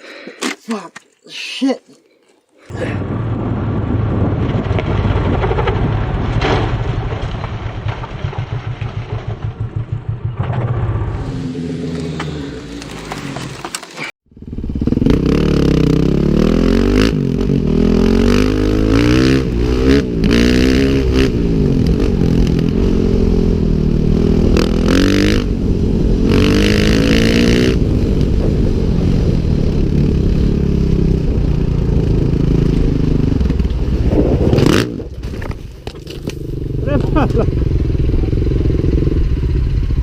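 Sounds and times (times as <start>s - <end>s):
motorcycle engine revving: 8.3s - 40.0s.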